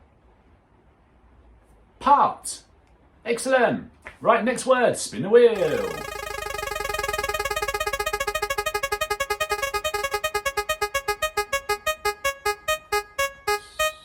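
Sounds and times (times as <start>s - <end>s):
spinner wheel electronic ticks: 5.6s - 13.8s.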